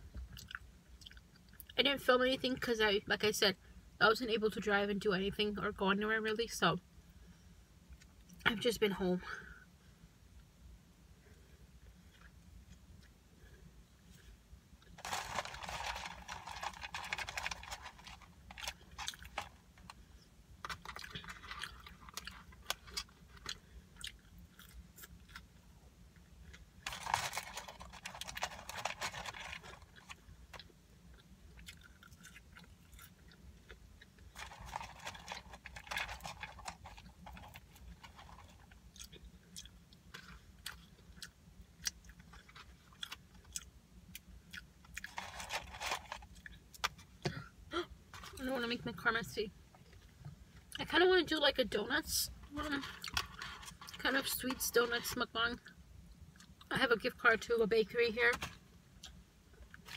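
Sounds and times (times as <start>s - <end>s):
chewing and crunching food: 0.1s - 1.8s, 14.1s - 47.5s, 52.5s - 54.2s, 58.4s - 59.9s.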